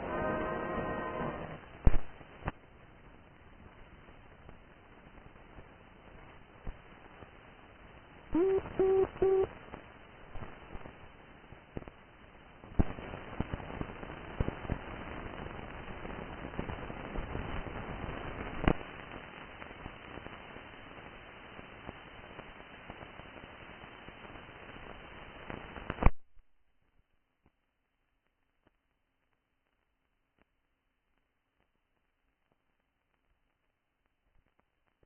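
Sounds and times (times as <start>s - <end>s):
old recording hiss and crackle: 0.0s - 35.0s
sharp clicks and pops: 1.8s - 2.6s.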